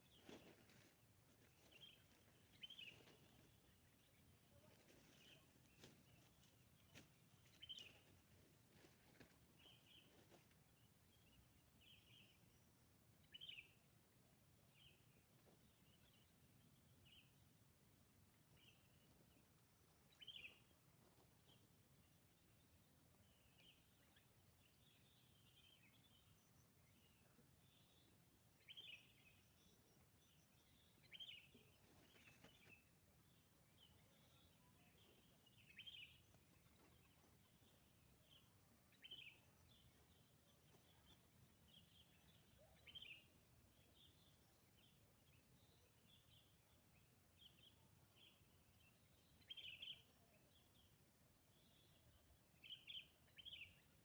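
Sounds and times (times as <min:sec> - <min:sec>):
faint bird chirps: 0:23.5 - 0:54.0
bird calls: 0:33.8 - 0:46.5.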